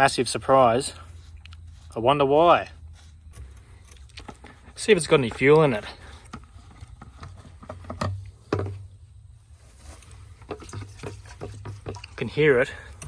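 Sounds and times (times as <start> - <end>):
fuel sloshing in a tank: 0.0 - 13.0.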